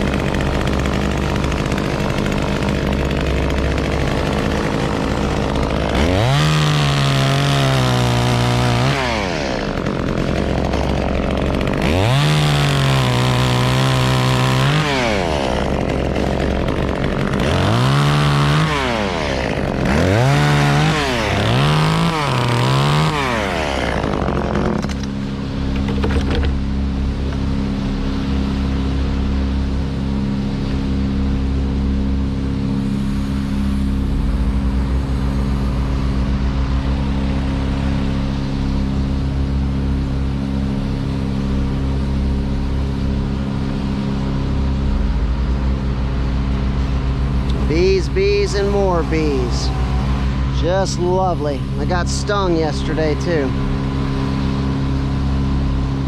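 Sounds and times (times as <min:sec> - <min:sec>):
chainsaw revving: 0:00.0 - 0:26.5, 0:44.2 - 0:56.0.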